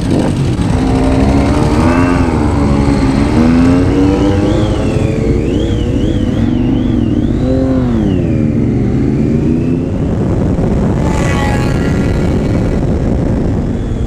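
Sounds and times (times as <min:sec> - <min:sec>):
motorcycle engine accelerating: 0:00.0 - 0:13.8
wind rumble on microphone: 0:00.0 - 0:14.0.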